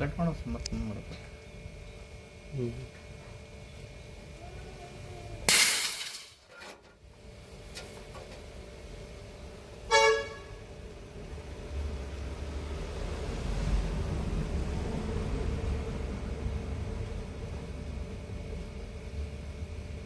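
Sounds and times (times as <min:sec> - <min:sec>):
loud burst of hiss: 0:05.5 - 0:06.4
short vehicle horn toot: 0:09.9 - 0:10.6.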